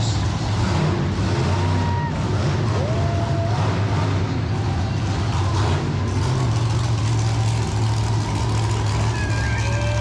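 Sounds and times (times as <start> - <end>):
truck engine droning: 0.0 - 10.0.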